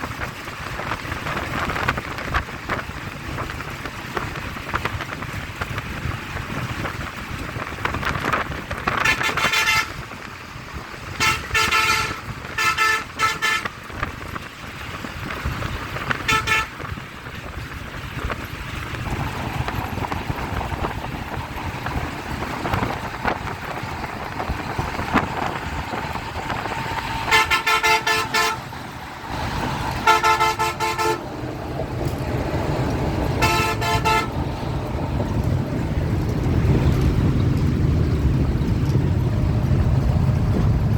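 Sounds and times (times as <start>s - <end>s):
road traffic noise: 0.0s - 40.9s
vehicle horns honking: 9.0s - 10.0s, 11.2s - 13.8s, 16.2s - 16.9s, 26.6s - 28.8s, 29.9s - 31.3s, 33.3s - 34.4s.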